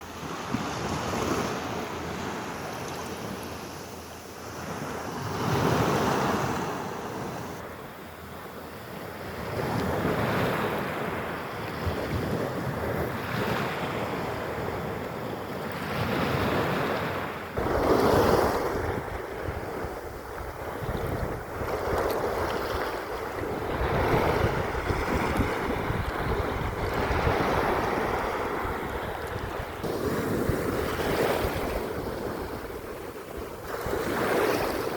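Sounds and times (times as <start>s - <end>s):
sea waves washing onto beach: 8.9s - 34.9s
wind buffeting microphone: 9.2s - 34.9s.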